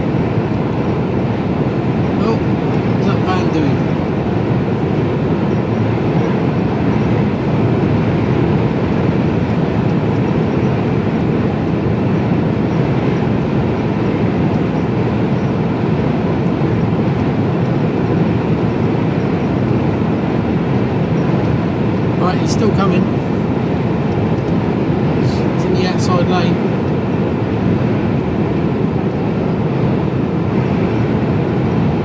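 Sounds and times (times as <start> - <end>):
lorry cab engine and road noise: 0.0 - 11.5, 21.0 - 27.4.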